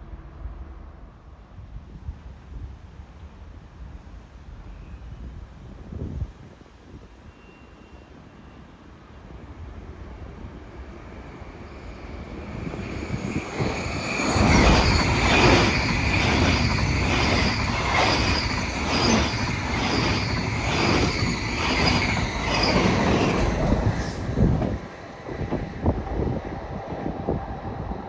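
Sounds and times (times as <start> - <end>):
train passing: 9.1 - 27.7
high whining tones: 10.4 - 25.1
wheels clattering over rails: 11.1 - 25.1.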